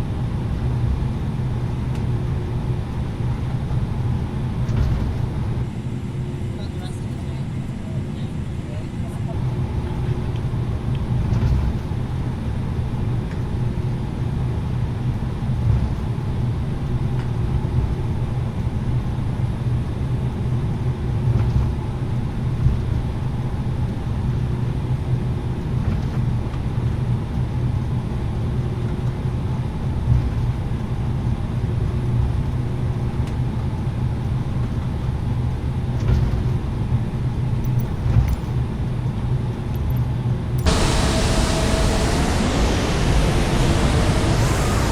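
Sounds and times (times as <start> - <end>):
constant low hum: 28.4 - 44.9
aircraft cabin engine rumble: 40.6 - 44.9.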